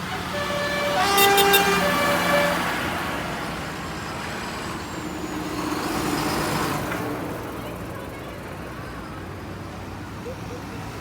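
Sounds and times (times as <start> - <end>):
vehicle horn tooting: 0.0 - 3.0
tractor engines passing: 0.0 - 11.0.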